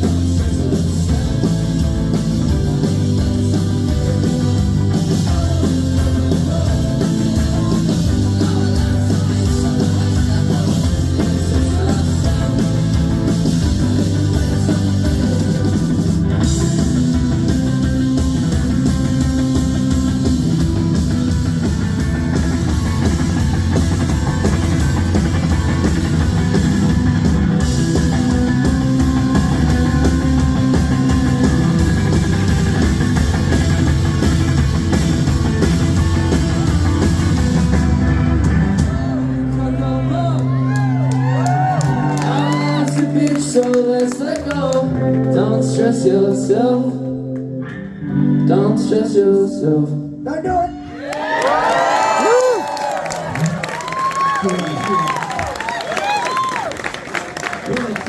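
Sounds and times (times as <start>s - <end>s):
drum kit: 0.0s - 39.6s
bass guitar: 0.0s - 58.0s
electric guitars: 0.0s - 58.0s.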